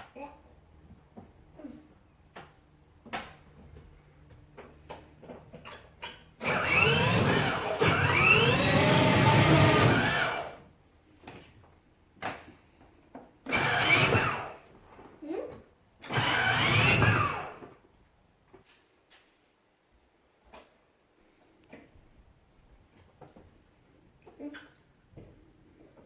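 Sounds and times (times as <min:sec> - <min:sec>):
toy car electric motor whirring: 0:06.4 - 0:10.6, 0:13.5 - 0:14.6, 0:16.0 - 0:17.7.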